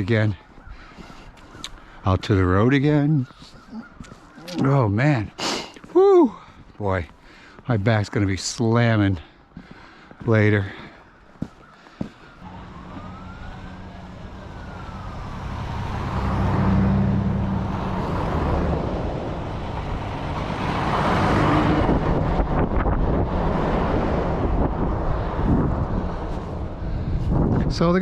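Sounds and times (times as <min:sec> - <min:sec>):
faint siren wail: 0:10.2 - 0:27.2
vehicle engine hum passing: 0:12.4 - 0:27.5.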